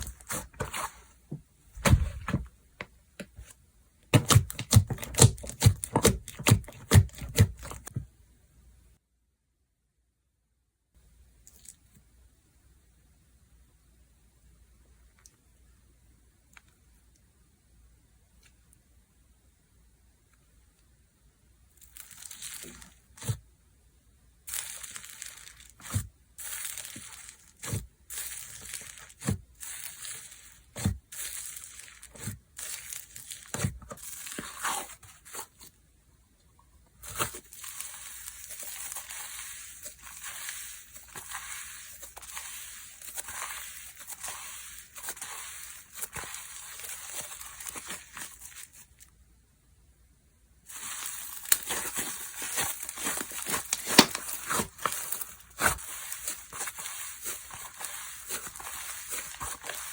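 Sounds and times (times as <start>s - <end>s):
slime crackling: 4.1s - 7.9s, 21.8s - 23.4s, 24.5s - 35.6s, 37.0s - 49.0s, 50.7s - 59.9s
slime squeezed and stretched: 21.8s - 23.4s, 24.5s - 35.6s, 37.0s - 48.9s, 50.7s - 59.9s
slime popping: 50.7s - 59.9s.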